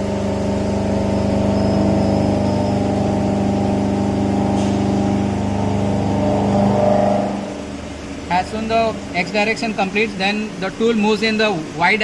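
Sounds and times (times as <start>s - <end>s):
milling machine cutting hum: 0.0s - 10.2s.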